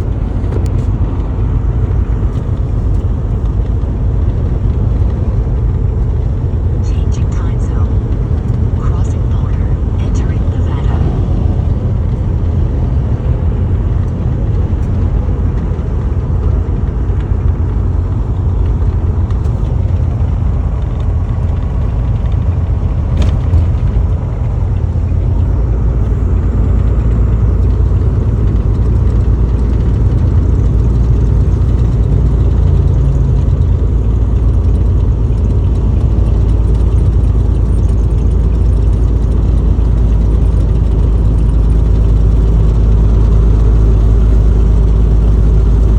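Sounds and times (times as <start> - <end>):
car engine and road noise: 0.0 - 45.9.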